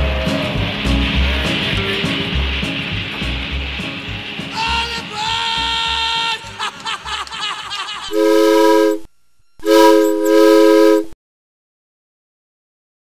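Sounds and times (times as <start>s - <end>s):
song music: 8.1s - 11.1s
chime train whistle blasts: 8.1s - 11.2s.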